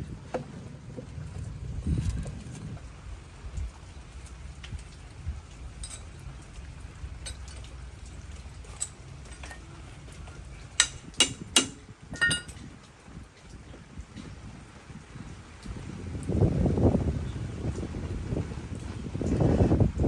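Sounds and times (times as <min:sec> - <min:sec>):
low background rumble: 0:00.0 - 0:20.0
metal tools clinking: 0:05.8 - 0:06.3, 0:08.7 - 0:09.7, 0:10.8 - 0:12.7.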